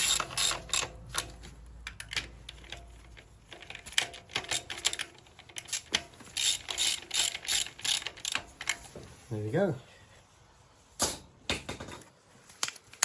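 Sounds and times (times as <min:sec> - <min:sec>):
hand ratchet clicking: 0:00.0 - 0:01.3, 0:01.9 - 0:08.9.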